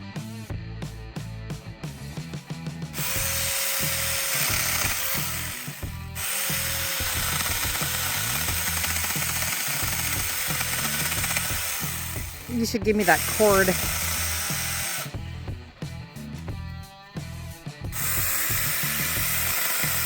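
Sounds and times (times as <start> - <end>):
background music: 0.0 - 20.0
electric mini chainsaw running: 3.0 - 15.7, 17.9 - 20.0.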